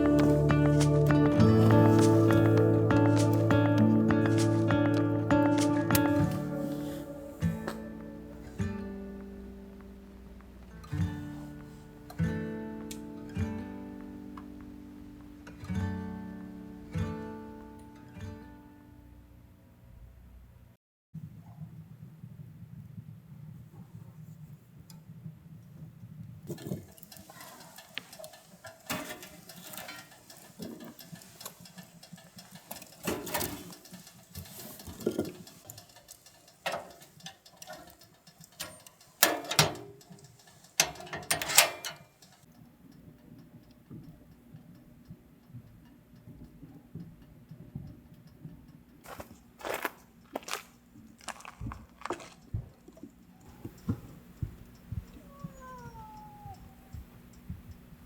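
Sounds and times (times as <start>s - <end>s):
clicks and knocks of objects handled: 26.5s - 42.5s
faint low hum: 42.6s - 58.0s.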